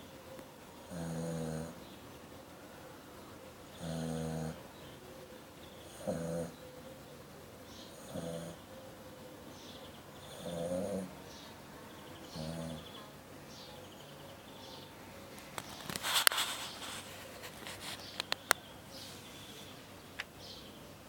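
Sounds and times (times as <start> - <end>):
dog snoring: 0.9 - 1.8, 3.7 - 4.7, 5.8 - 6.6, 7.9 - 8.7, 10.3 - 11.1, 12.2 - 13.0.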